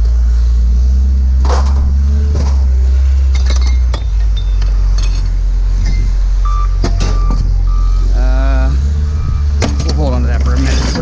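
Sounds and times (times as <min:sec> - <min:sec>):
heavy engine humming: 0:00.0 - 0:11.0
scrap metal clanking: 0:09.6 - 0:11.0.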